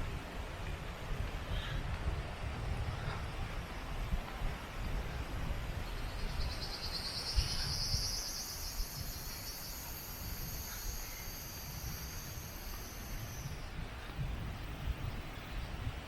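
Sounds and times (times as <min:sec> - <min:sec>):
insect buzzing song: 0:05.9 - 0:13.8.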